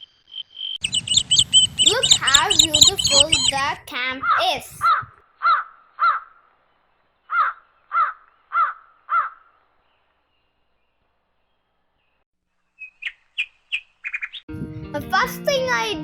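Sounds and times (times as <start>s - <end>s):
crow cawing: 4.2s - 6.5s, 7.3s - 9.6s.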